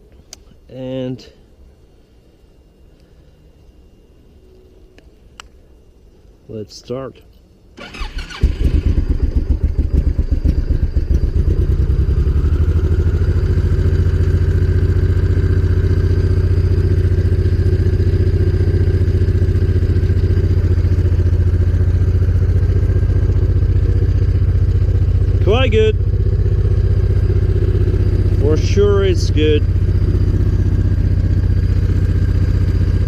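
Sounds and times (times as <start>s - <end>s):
motorcycle engine starting and idling: 7.8s - 33.0s.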